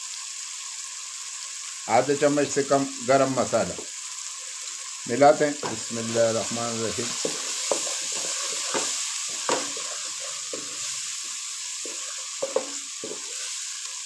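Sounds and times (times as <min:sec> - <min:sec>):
paste sizzling in oil: 0:00.0 - 0:14.0
wooden spatula knocking on pan: 0:05.6 - 0:05.9, 0:07.1 - 0:10.9, 0:11.8 - 0:13.4.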